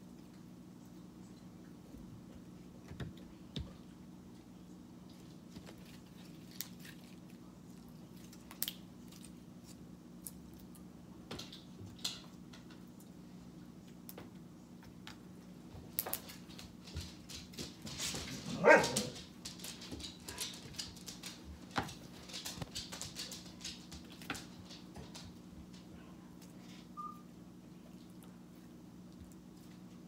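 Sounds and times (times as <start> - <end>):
small clicks and crackles: 15.9 - 26.7.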